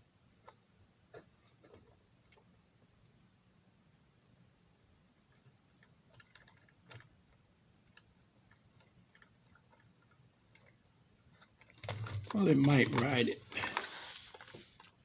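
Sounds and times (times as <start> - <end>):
faint clicks of small parts: 5.3 - 15.0.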